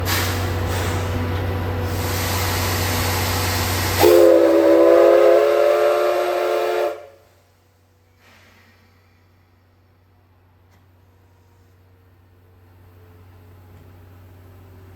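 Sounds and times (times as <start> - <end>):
steam locomotive hissing: 0.0 - 9.9
steam whistle blast: 1.9 - 7.3.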